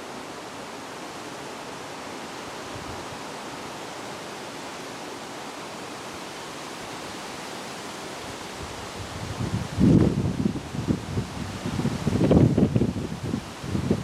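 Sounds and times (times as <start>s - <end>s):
rushing wind: 0.0s - 14.0s
wind gust hitting microphone: 8.6s - 14.0s.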